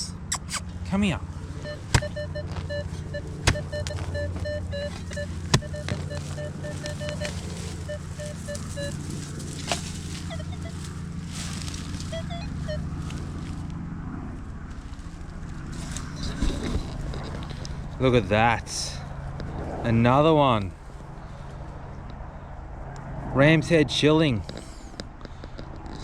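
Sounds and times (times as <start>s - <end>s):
steady low hum: 0.0s - 23.0s
metal detector beeping: 1.4s - 13.6s.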